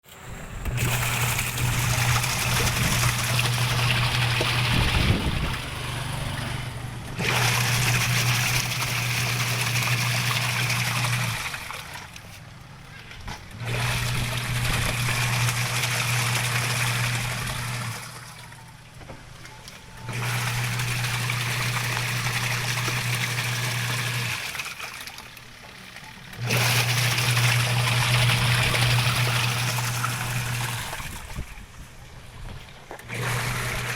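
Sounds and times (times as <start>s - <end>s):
washing machine motor humming: 0.1s - 33.9s
water swishing: 0.2s - 33.9s.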